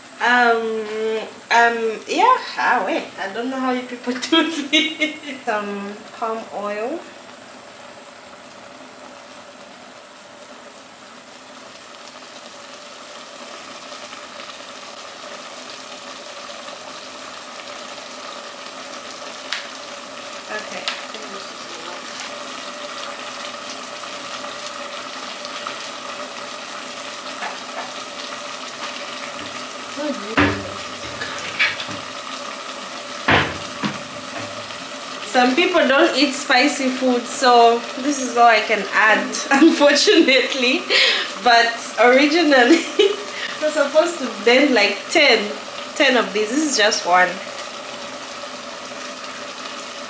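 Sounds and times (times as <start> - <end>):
chicken sizzling in a pot: 0.0 - 50.0.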